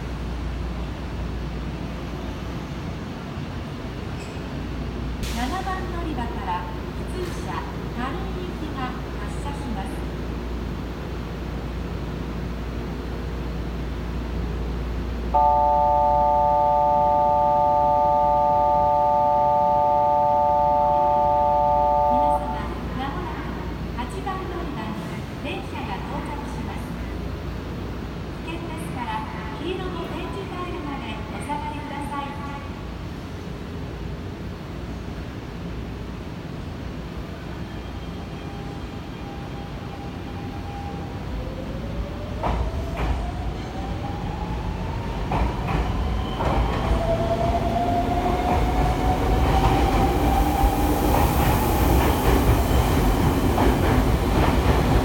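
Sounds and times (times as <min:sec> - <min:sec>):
train low rumble: 0:00.0 - 0:55.0
departure buzzer chord: 0:15.4 - 0:22.5.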